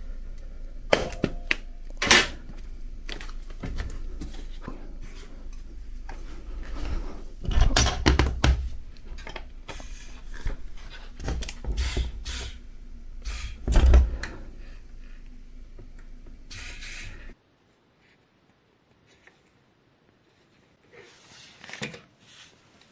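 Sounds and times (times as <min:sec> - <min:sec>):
loud bumps: 0:00.0 - 0:17.3
tools clicking and knocking: 0:00.9 - 0:12.9
short hiss: 0:16.0 - 0:17.4.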